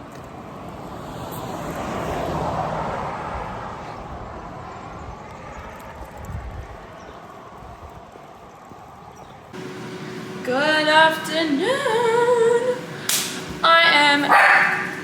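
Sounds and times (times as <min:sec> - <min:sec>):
vehicle passing by: 0:00.8 - 0:05.2.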